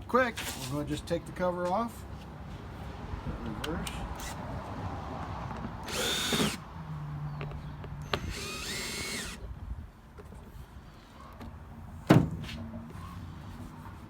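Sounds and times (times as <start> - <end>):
power drill running: 5.8 - 6.6, 8.0 - 9.4.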